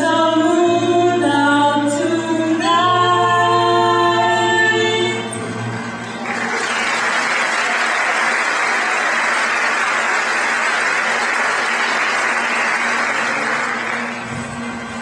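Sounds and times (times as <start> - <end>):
audience applauding: 6.2 - 14.4.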